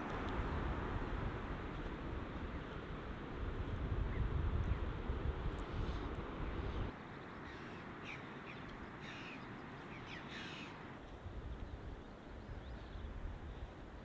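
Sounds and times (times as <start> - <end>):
short bird calls: 7.3 - 10.8.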